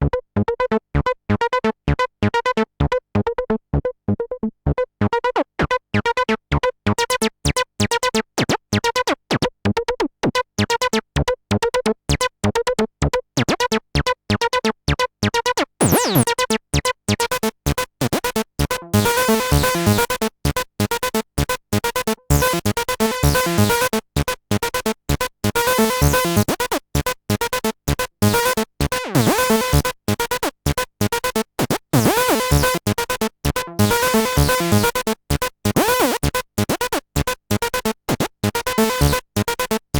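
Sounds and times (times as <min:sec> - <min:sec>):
acid bass synthesizer sequence: 0:15.8 - 0:16.3, 0:18.6 - 0:26.6, 0:27.2 - 0:39.9.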